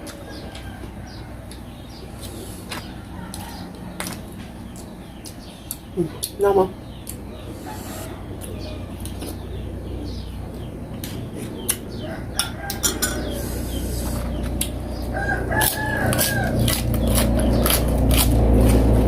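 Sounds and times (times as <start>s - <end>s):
rooster crowing: 0.1s - 1.5s, 2.9s - 4.0s, 7.5s - 8.9s, 11.9s - 13.7s, 15.0s - 16.9s
aircraft passing overhead: 6.7s - 19.0s.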